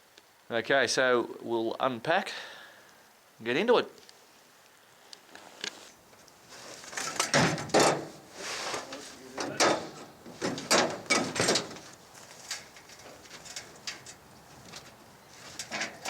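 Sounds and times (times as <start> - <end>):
luggage scraping and rustling: 5.6 - 16.0.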